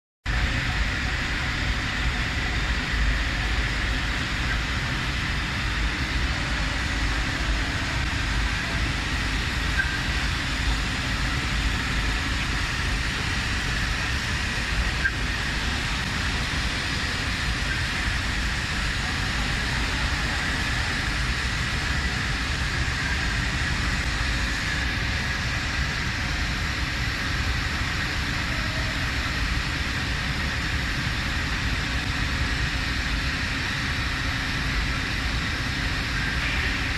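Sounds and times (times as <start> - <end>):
flotation machines rumbling: 0.3 - 36.9
machine hiss: 0.3 - 36.9.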